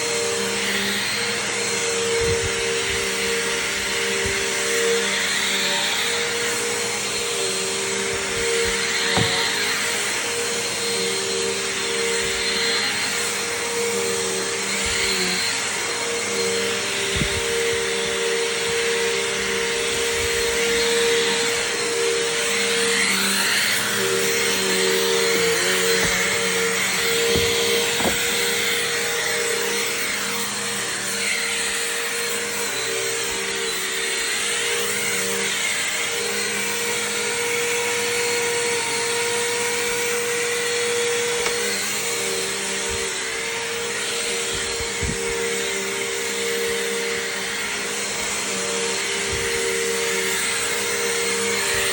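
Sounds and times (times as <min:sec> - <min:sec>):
vacuum cleaner running: 0:00.0 - 0:51.9
short knocks: 0:09.0 - 0:09.7, 0:25.1 - 0:28.8.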